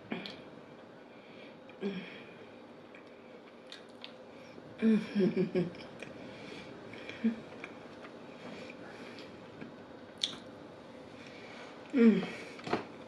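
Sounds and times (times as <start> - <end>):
chewing and wet mouth clicks: 2.9 - 4.2, 10.2 - 10.4.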